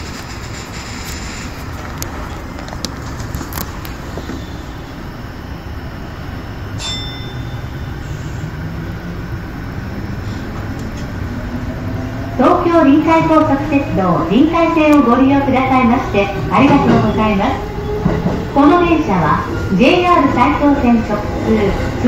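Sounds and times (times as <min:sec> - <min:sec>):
standing train hum: 0:00.0 - 0:22.0
low motor whine rising: 0:03.9 - 0:15.2.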